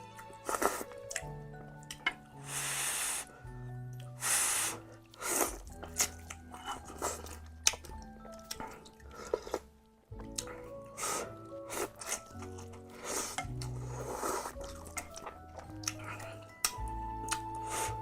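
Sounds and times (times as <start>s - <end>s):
person slurping noodle soup: 0.4s - 1.0s, 2.4s - 3.3s, 4.2s - 7.4s, 10.9s - 14.8s
wet chewing: 3.9s - 18.0s
background music with bass: 9.1s - 18.0s.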